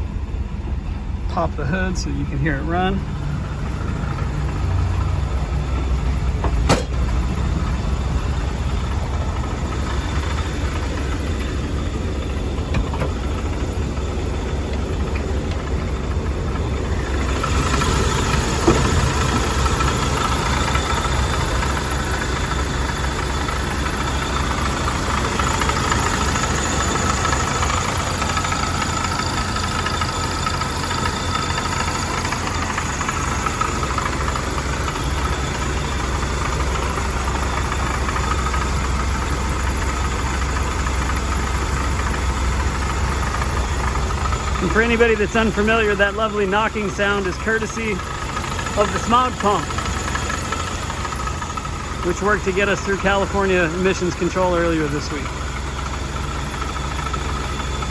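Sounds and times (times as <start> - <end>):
car engine idling: 0.0 - 57.9
pump knocking: 17.0 - 21.8.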